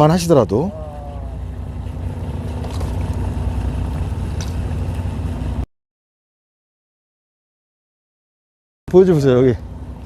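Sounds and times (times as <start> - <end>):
boat engine rumbling: 0.0 - 5.7, 8.9 - 10.0.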